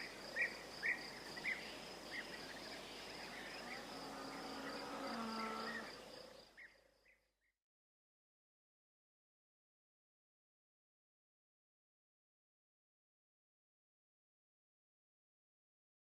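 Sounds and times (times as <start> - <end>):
high insect trill: 0.0 - 6.6.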